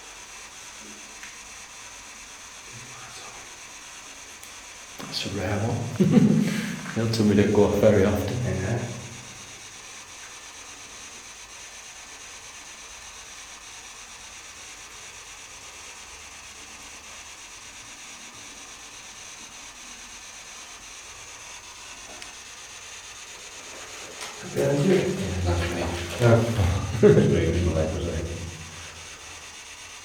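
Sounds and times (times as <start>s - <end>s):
steady hiss: 0.0s - 9.8s, 20.0s - 30.0s.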